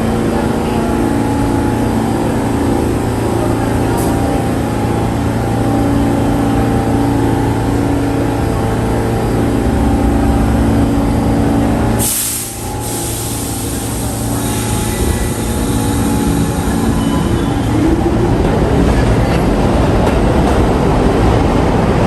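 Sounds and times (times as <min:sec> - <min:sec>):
subway train equipment humming: 0:00.0 - 0:22.0
brake air release hiss: 0:12.0 - 0:16.0.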